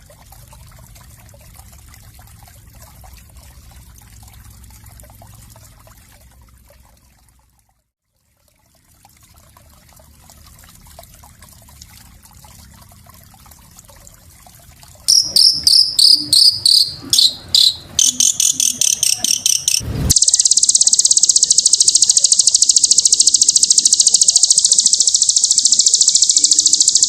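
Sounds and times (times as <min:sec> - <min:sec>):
faint trickling water hiss: 0:00.0 - 0:19.2
songbird chirping rapidly: 0:15.1 - 0:27.0.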